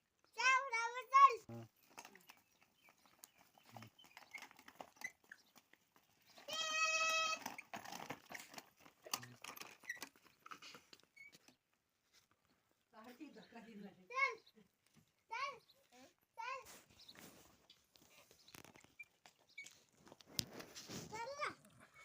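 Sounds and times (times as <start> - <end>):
small clicks and rustles: 1.7 - 13.3, 16.6 - 22.0.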